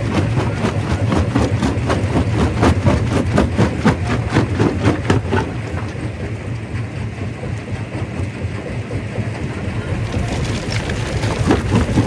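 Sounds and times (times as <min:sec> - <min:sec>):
rock crusher machine hum: 0:00.0 - 0:12.0
rocks knocking and clattering: 0:10.0 - 0:12.0.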